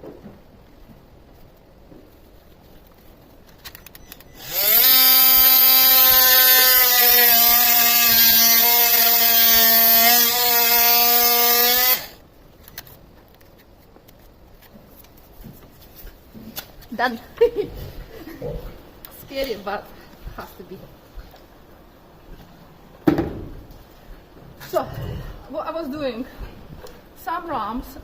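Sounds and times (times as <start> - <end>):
power tool whine: 4.4 - 12.2.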